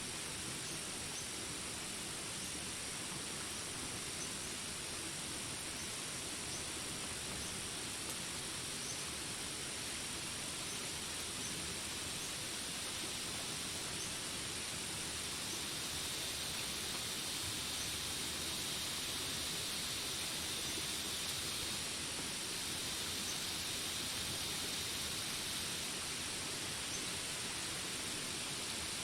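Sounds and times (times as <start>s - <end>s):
insect drone: 0.0s - 29.0s
steady rain: 0.0s - 29.0s
higher insect tone: 15.0s - 26.0s.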